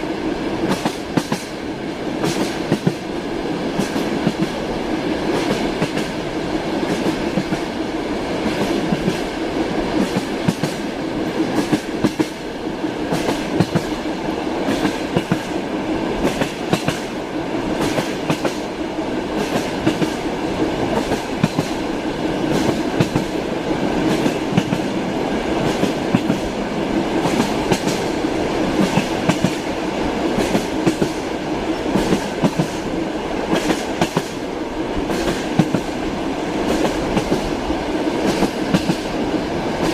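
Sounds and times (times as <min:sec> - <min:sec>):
train rumbling: 0:00.0 - 0:39.9.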